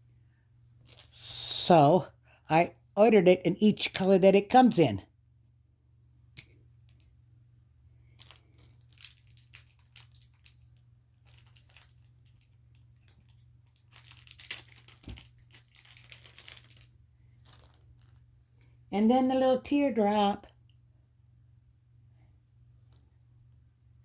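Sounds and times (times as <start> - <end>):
faint low hum: 0.0 - 24.0
plastic packaging crinkling: 0.8 - 1.2, 8.1 - 18.7.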